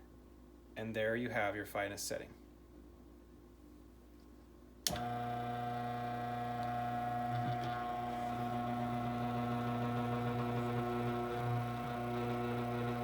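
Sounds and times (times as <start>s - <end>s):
grain mill motor humming: 4.9s - 13.0s.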